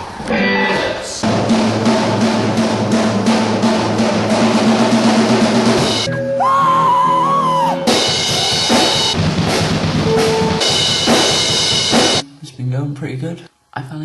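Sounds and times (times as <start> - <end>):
drum kit fast beat: 1.2 - 12.2
held high tone: 6.0 - 9.2, 10.0 - 10.9.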